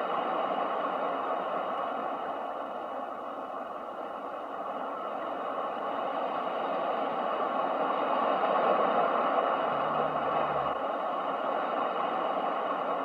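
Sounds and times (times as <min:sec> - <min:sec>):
ocean waves breaking: 0:06.0 - 0:10.8
faint low hum: 0:07.8 - 0:10.9.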